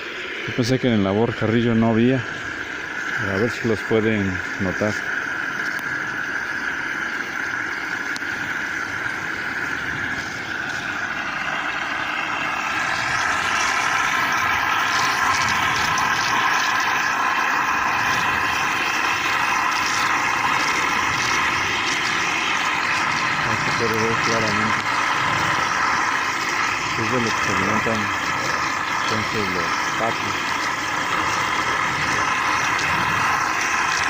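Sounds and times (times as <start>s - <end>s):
whining engine drone: 0.0s - 34.0s.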